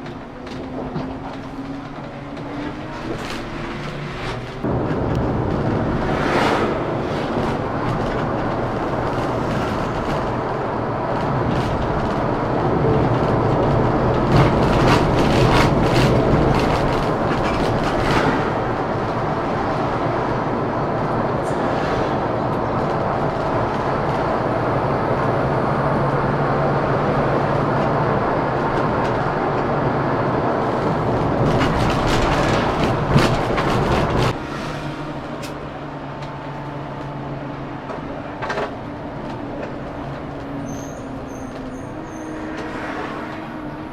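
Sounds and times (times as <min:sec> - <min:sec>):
diesel coach engine: 0:00.0 - 0:43.9
road noise: 0:00.0 - 0:43.9
rattles and knocks: 0:30.6 - 0:34.4.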